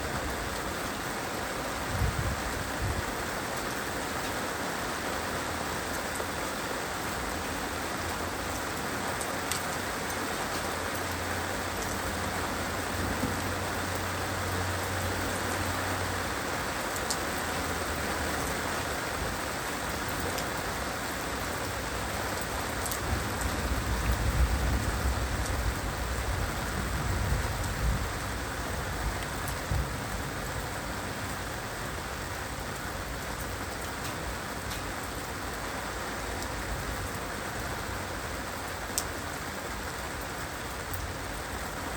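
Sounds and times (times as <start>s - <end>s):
heavy rain falling: 0.0s - 41.9s
thunder rumbling: 23.0s - 31.3s.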